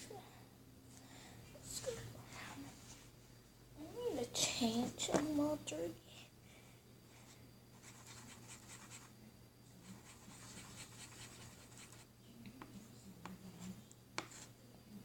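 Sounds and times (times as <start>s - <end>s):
slime scratching and rubbing: 9.9s - 12.0s.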